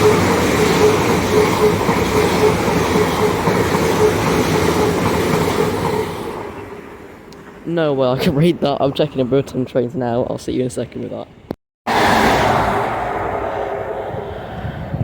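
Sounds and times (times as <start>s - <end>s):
train wheels rumbling on rail: 0.0s - 7.7s.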